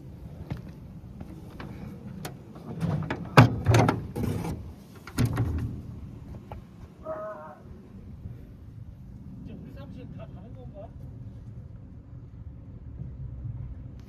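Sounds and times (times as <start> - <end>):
low background rumble: 0.0 - 14.0
knocks and clatter of parts: 0.5 - 6.6.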